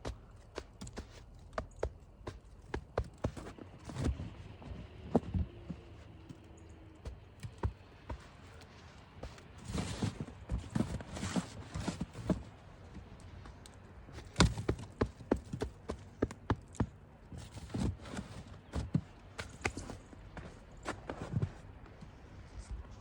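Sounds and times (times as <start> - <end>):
packed snow knocks and crunches: 0.0 - 6.4, 7.0 - 12.6, 14.2 - 21.6
footsteps in snow: 0.1 - 13.5, 17.3 - 23.0
scraping snow: 3.0 - 6.2, 7.1 - 12.6, 17.4 - 21.8.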